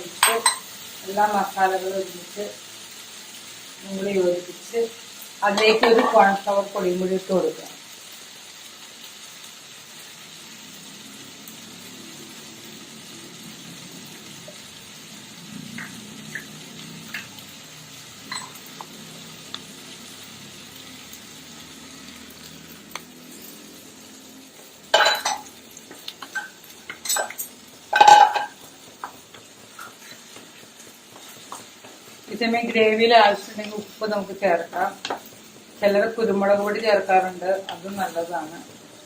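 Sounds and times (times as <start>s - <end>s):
faint sizzle from pan: 0.0s - 39.0s
spoon clinking in bowl: 18.3s - 18.6s.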